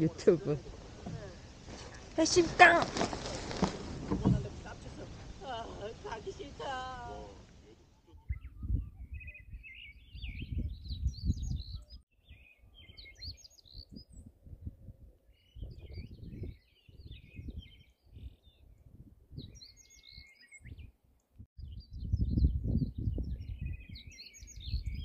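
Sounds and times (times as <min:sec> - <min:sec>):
songbird twittering: 0:08.1 - 0:14.3, 0:19.4 - 0:20.9, 0:21.6 - 0:25.0.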